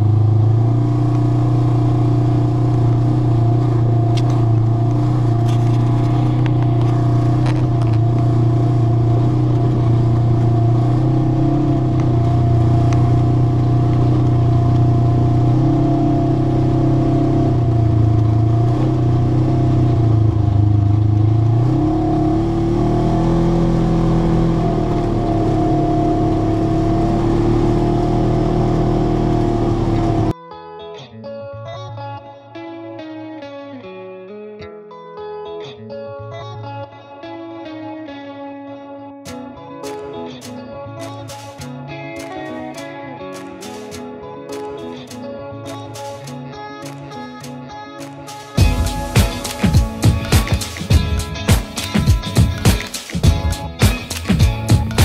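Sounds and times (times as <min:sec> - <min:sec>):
atv engine running: 0:00.0 - 0:30.3, 0:48.4 - 0:55.0.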